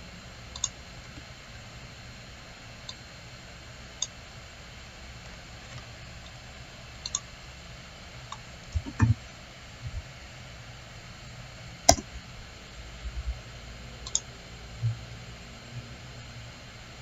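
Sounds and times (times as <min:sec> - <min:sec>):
steady low hum: 0:00.0 - 0:17.0
computer mouse clicking: 0:00.5 - 0:00.8, 0:07.0 - 0:07.3, 0:11.9 - 0:12.1, 0:14.0 - 0:14.3.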